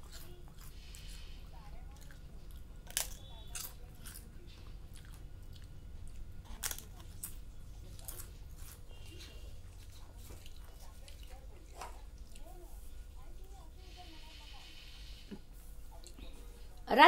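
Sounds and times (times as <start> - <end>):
chewing: 0.0 - 13.6
crisp food crunching: 1.8 - 12.5.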